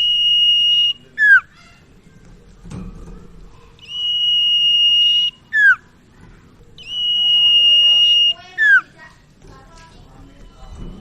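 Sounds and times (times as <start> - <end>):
bird whistling: 0.0 - 1.6, 3.8 - 5.9, 6.8 - 9.0.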